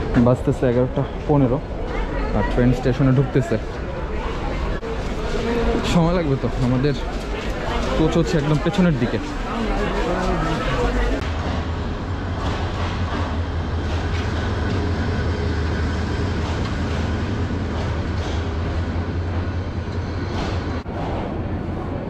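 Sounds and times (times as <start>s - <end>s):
rolling train noise: 0.0s - 22.0s
diesel locomotive engine drone: 2.8s - 22.0s
wheels clacking over rails: 11.2s - 21.3s.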